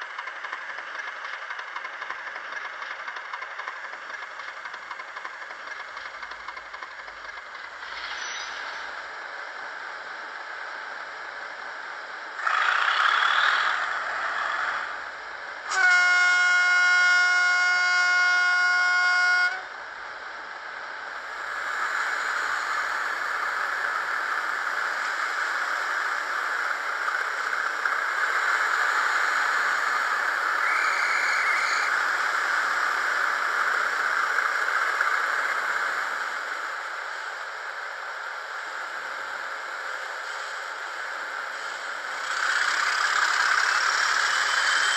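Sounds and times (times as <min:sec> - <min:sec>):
model locomotive diesel engine sound: 0:00.0 - 0:44.9
locomotive horn blast: 0:15.7 - 0:19.7.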